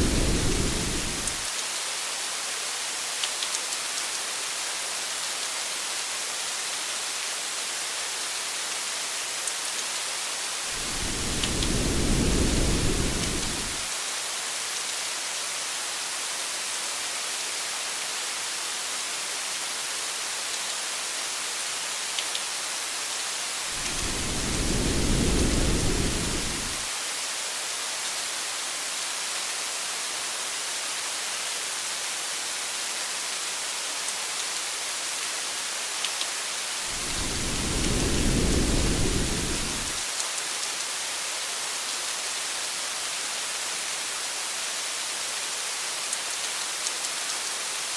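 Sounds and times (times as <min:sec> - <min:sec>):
low rumbles of thunder: 0:00.0 - 0:01.4, 0:10.8 - 0:13.8, 0:23.7 - 0:26.9, 0:36.9 - 0:40.0
heavy rain hissing: 0:00.0 - 0:01.5, 0:10.5 - 0:14.0, 0:23.5 - 0:27.2, 0:36.7 - 0:40.1.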